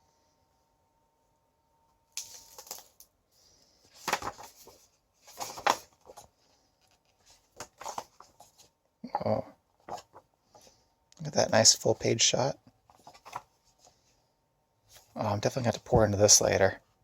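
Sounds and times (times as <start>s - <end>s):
book pages turning: 2.2s - 3.1s, 3.8s - 8.7s, 9.8s - 10.8s, 12.8s - 14.0s.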